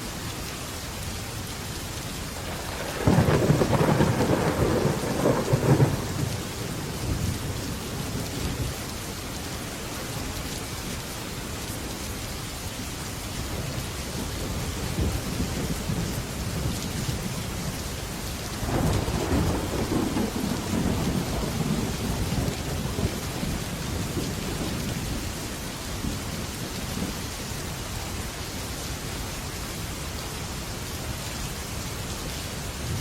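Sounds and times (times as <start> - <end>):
heavy rain on metal roof: 0.0 - 33.0
thunder rumbling: 2.4 - 8.9, 18.6 - 27.2.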